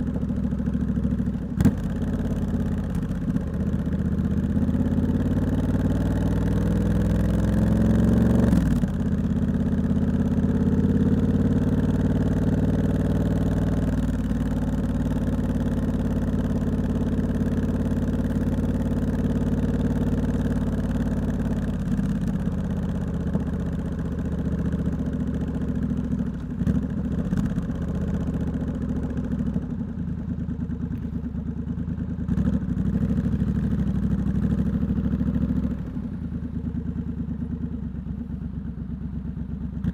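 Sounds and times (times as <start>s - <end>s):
motorcycle engine revving: 0.0s - 29.8s.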